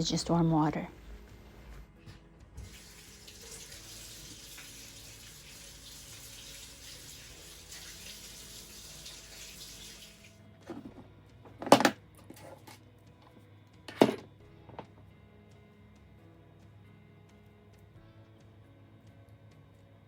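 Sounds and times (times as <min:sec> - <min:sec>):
water running from a tap: 0:02.6 - 0:10.4.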